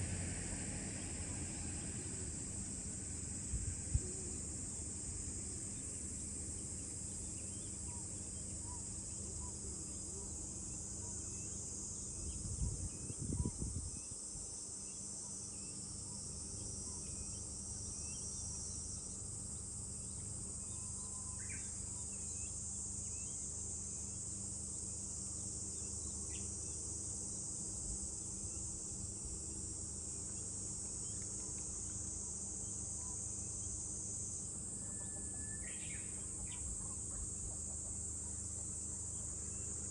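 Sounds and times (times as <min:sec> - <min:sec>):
cicadas chorus: 0:00.0 - 0:39.9
faint bird chirps: 0:34.8 - 0:37.6.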